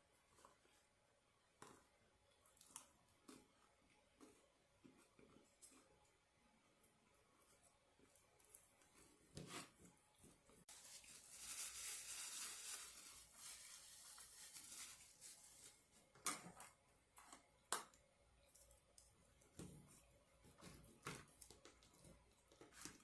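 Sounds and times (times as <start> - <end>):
soft rustling: 7.4 - 16.2.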